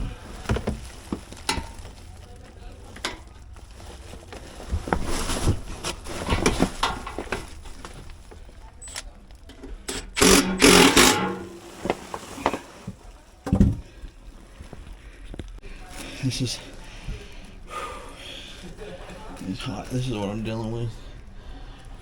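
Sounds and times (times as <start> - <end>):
loud clatter: 10.2 - 12.9.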